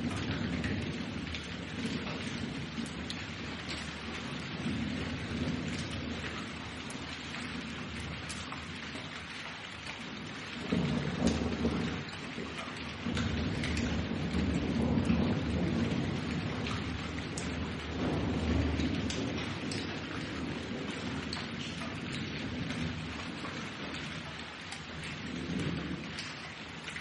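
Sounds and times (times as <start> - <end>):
low rolling thunder: 0.0 - 27.0
steady rain: 0.0 - 27.0.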